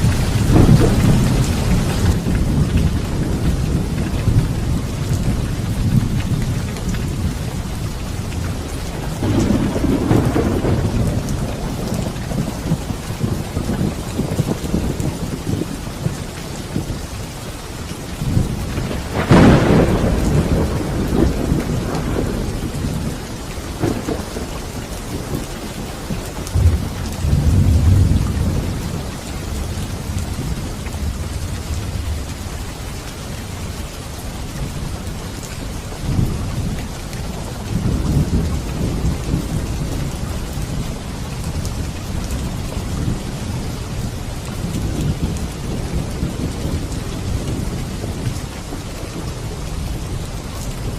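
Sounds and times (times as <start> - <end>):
sharp thunderclap: 0.0 - 6.3, 9.0 - 16.1, 18.3 - 25.8, 26.5 - 29.0
deep thunder rumbles: 0.0 - 50.9
heavy rain: 0.0 - 50.9.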